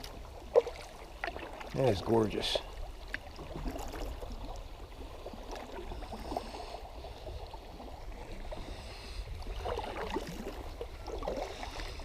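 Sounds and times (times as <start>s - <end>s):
small splashes: 0.0s - 6.7s
water gurgling and lapping: 0.0s - 12.0s.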